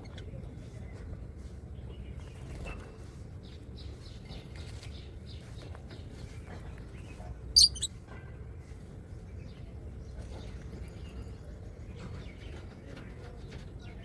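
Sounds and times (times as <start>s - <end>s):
parrot harsh screech: 7.6s - 7.9s
parrots chirping: 7.6s - 7.9s.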